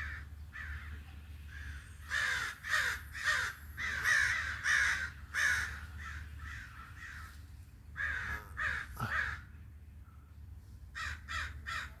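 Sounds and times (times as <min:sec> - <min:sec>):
crows cawing: 0:00.0 - 0:07.4, 0:08.0 - 0:09.6, 0:10.9 - 0:12.0
steady low hum: 0:00.0 - 0:12.0.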